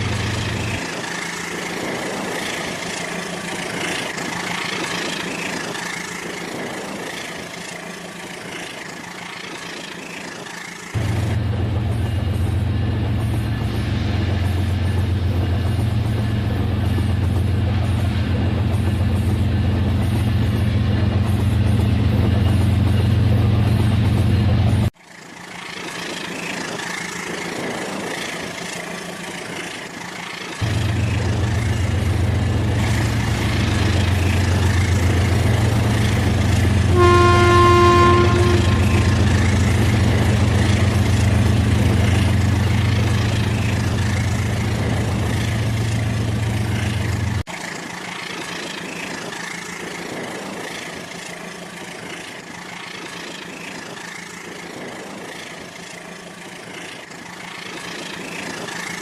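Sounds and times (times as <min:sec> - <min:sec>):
toy train electronic horn: 0:36.9 - 0:39.6.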